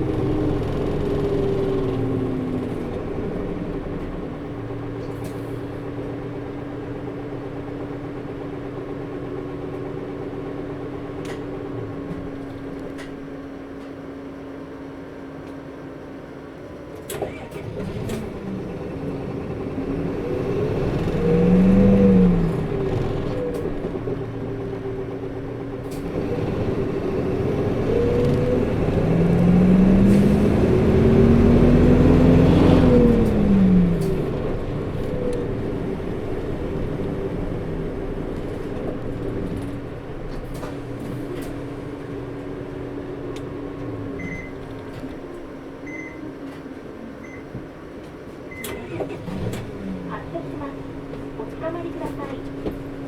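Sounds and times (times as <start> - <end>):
bus engine accelerating: 0.0 - 53.0
loud engine fan: 17.2 - 46.0, 48.6 - 53.0.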